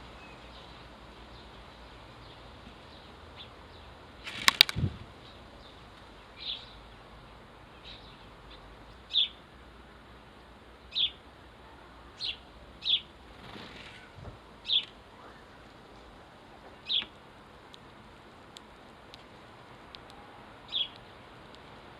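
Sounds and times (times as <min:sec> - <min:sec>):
sparrow chirping: 0:05.2 - 0:07.0, 0:07.7 - 0:09.4, 0:10.8 - 0:11.2, 0:12.2 - 0:13.1, 0:13.7 - 0:15.6, 0:16.8 - 0:17.2, 0:20.2 - 0:21.2.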